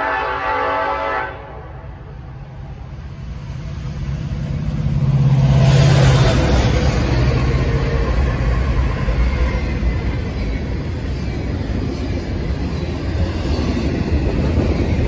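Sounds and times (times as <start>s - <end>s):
train horn: 0.0s - 2.1s
diesel locomotive engines: 0.0s - 15.0s
steel wheels rushing on rails: 2.1s - 15.0s.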